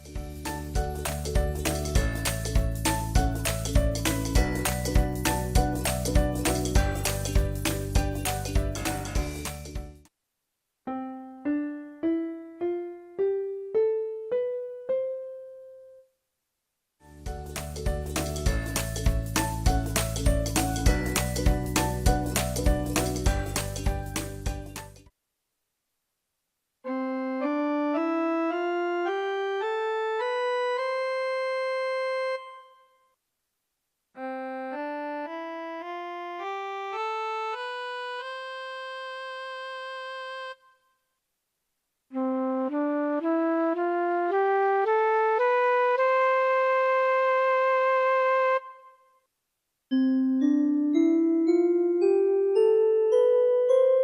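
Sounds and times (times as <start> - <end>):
electronic keyboard playing a scale: 10.9 - 15.6, 26.9 - 32.7, 34.2 - 40.6, 50.0 - 54.0.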